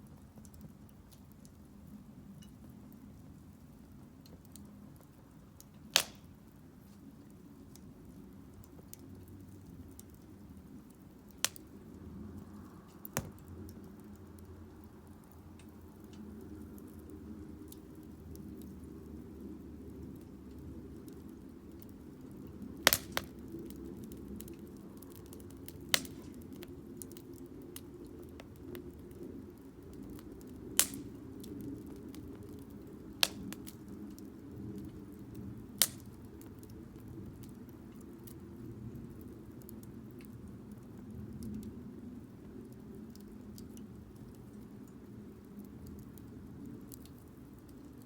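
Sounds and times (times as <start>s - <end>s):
firewood crackling: 0.1s - 48.0s
sharp pops of fire: 5.6s - 6.5s, 11.3s - 11.8s, 12.9s - 14.2s, 22.8s - 27.2s, 30.0s - 32.5s, 33.2s - 34.8s, 35.7s - 36.7s.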